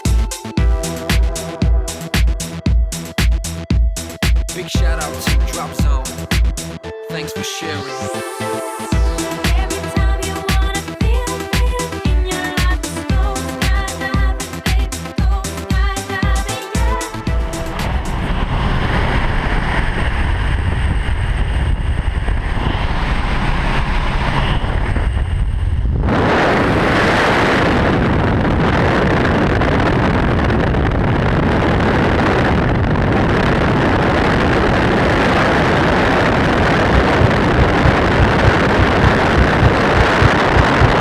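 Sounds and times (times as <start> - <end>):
low rumble: 0.6 - 6.8, 16.9 - 41.0
wind rushing on microphone: 17.2 - 41.0.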